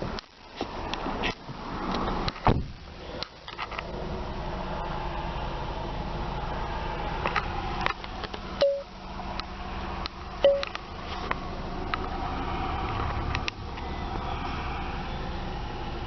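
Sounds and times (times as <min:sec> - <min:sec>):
car engine hum: 0:00.0 - 0:16.0
short beeps: 0:08.6 - 0:08.9, 0:10.4 - 0:10.7.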